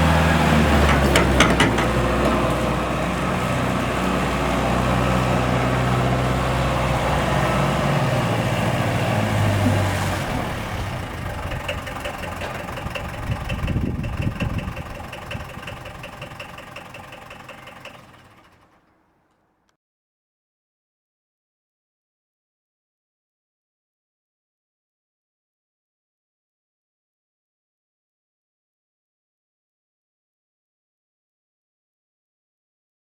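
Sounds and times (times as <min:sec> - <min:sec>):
diesel engine running: 0:00.0 - 0:19.4.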